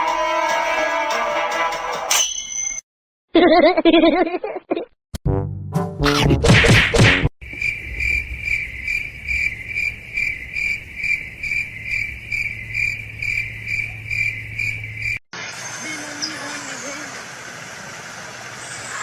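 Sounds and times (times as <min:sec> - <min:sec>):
high insect-like chirping: 0:07.4 - 0:15.2.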